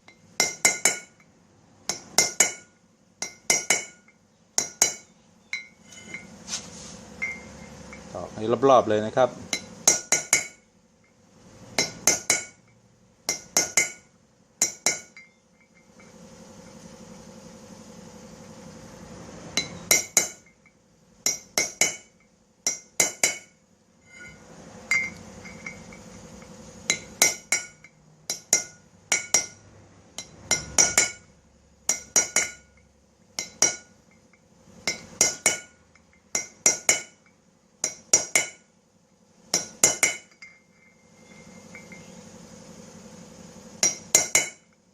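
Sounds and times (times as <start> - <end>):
hammer tapping metal punch: 0.0 - 1.3, 1.9 - 6.3, 9.5 - 16.1, 19.6 - 29.6, 30.2 - 31.3, 31.9 - 38.7, 39.5 - 41.0, 43.8 - 44.8.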